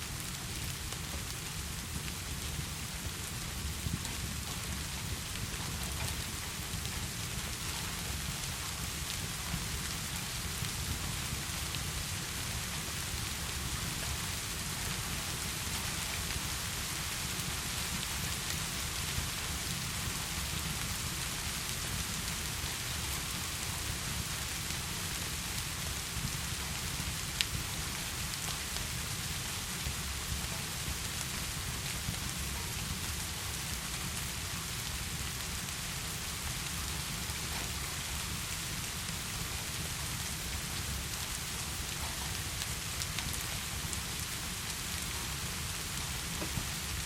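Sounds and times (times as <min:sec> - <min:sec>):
heavy rain: 0:00.0 - 0:47.0
fireplace crackling: 0:32.7 - 0:47.0.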